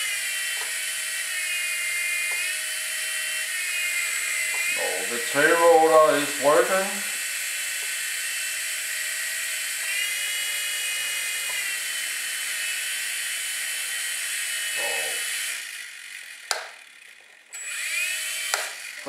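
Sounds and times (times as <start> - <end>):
small rotor motors whining: 0.0 - 19.0
sharp click: 16.5 - 16.8, 18.5 - 18.8.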